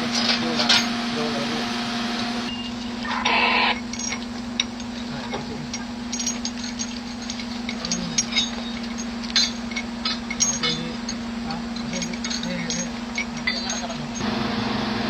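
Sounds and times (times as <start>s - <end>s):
steady machine hum: 0.0s - 15.0s
metallic clicks of tools: 3.7s - 14.2s.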